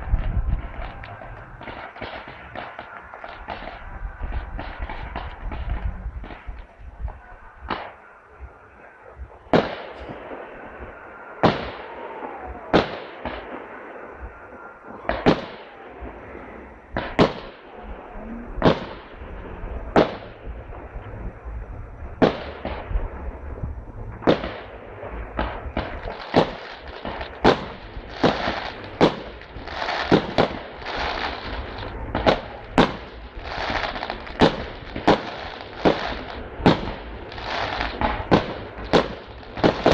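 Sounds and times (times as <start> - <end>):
firework crackling: 0.0 - 39.9
firework shells bursting: 24.2 - 39.9.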